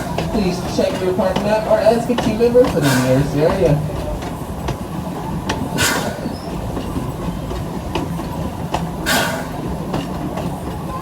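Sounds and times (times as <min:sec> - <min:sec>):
steam hiss: 0:00.0 - 0:04.0, 0:05.6 - 0:06.8, 0:07.6 - 0:10.2
train rumble on track: 0:00.0 - 0:11.0
wheel clicks on rail joints: 0:00.0 - 0:11.0.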